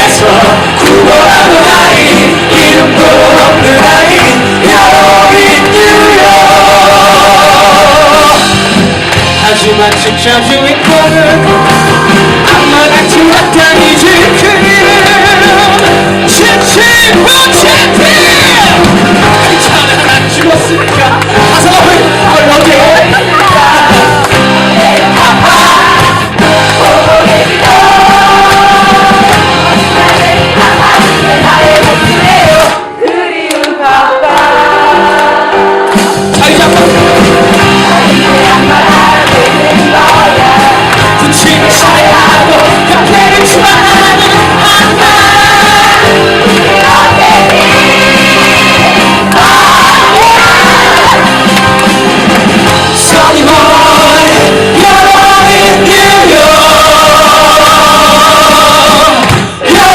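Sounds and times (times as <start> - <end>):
band accompaniment: 0.0 - 59.9
voices singing: 0.0 - 59.9
people shouting lines: 16.3 - 32.8, 36.4 - 51.8, 53.0 - 59.9.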